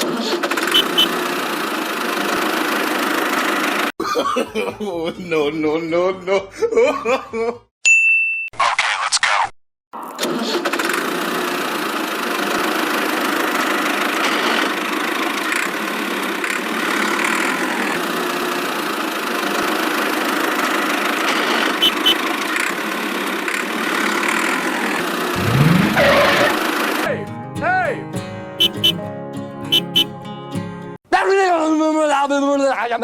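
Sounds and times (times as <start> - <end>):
short rising sound: 25.4 - 26.5.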